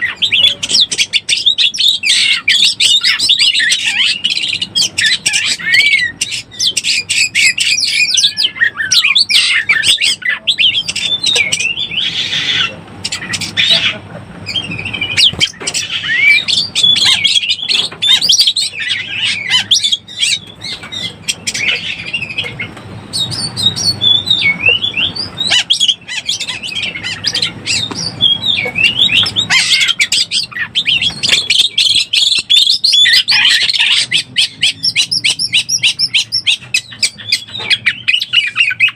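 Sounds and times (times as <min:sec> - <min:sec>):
bird singing varied whistles: 0:21.0 - 0:26.0.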